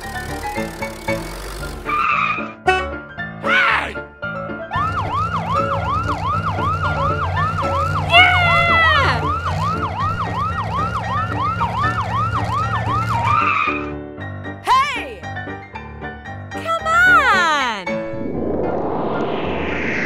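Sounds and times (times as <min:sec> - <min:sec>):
low engine drone: 0:04.7 - 0:13.4, 0:17.9 - 0:20.0
wailing ambulance siren: 0:04.7 - 0:13.8.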